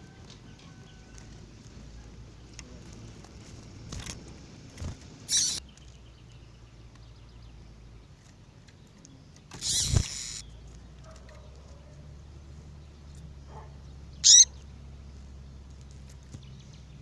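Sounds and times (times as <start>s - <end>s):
low steady background hum: 0.0s - 17.0s
bird sharp calls: 5.3s - 6.0s, 9.5s - 12.0s, 13.5s - 14.7s.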